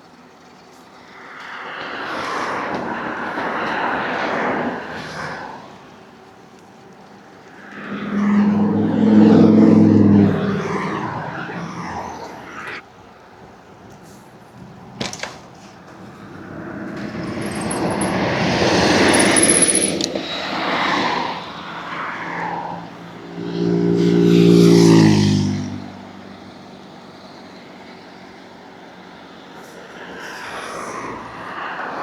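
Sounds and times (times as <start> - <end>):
tyre and road noise: 1.3 - 12.8, 13.4 - 25.7
motor vehicle passing: 7.4 - 12.8, 16.2 - 26.2.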